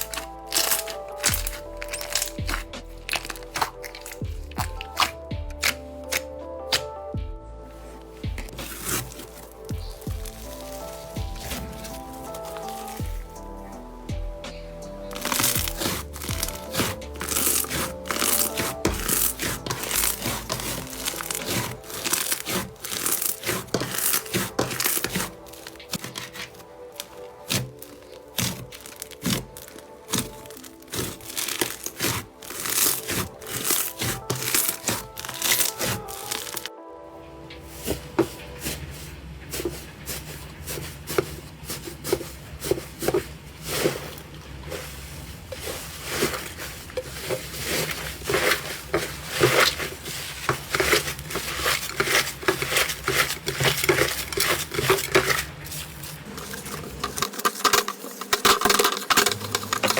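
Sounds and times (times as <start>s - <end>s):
slime crackling when squeezed: 0.0s - 6.9s, 15.1s - 36.7s
slime squishing wet pops: 0.0s - 6.9s
background music: 0.0s - 59.9s.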